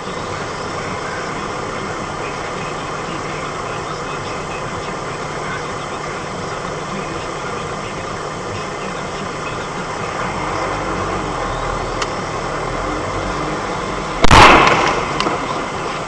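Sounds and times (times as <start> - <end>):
vehicle running noise: 0.0 - 16.0
loud crash of road collision: 14.2 - 15.8.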